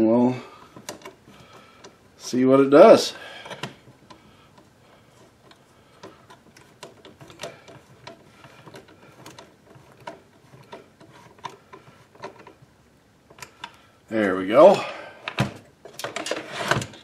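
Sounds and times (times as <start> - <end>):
plastic parts clicking and tapping: 0.6 - 2.0, 3.4 - 12.6, 13.3 - 13.8.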